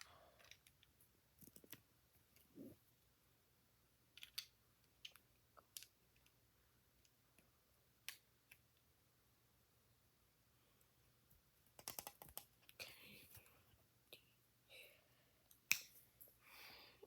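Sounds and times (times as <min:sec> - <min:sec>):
plastic bricks clicking: 0:04.1 - 0:06.3, 0:11.8 - 0:12.8.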